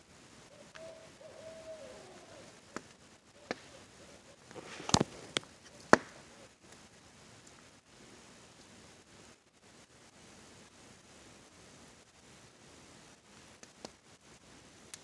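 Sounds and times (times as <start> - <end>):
owl hooting: 0.4 - 6.6
campfire crackling and popping: 2.5 - 10.9, 13.0 - 15.0.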